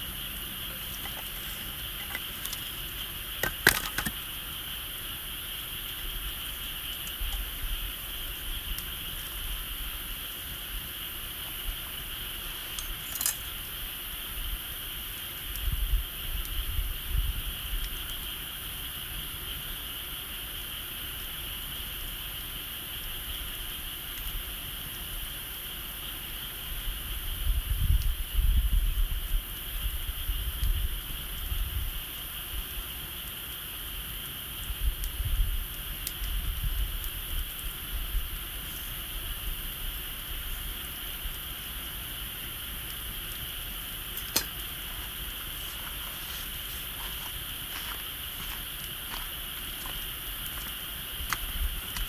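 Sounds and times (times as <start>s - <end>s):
wood fire crackling: 0.0s - 16.3s, 29.6s - 52.0s
sharp pops: 44.0s - 52.0s.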